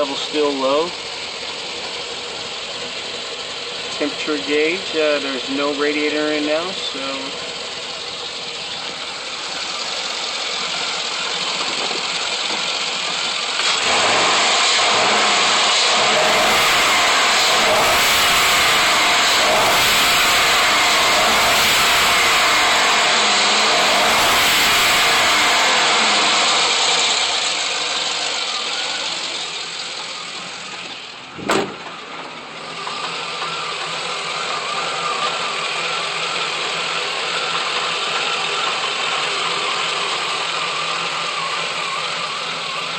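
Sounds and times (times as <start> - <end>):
car engine idling and revving: 0.0 - 42.9
sharp knock: 31.4 - 32.0.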